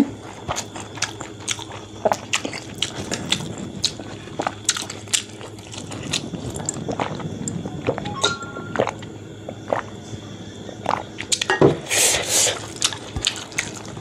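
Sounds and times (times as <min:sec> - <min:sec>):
wet chewing and lip smacking: 0:00.4 - 0:08.1, 0:12.3 - 0:13.9.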